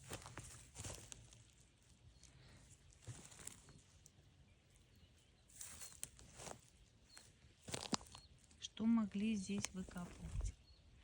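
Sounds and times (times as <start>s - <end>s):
footsteps crunching on leaf litter: 0.0s - 4.2s, 5.5s - 8.2s
soft outdoor background: 0.0s - 11.0s.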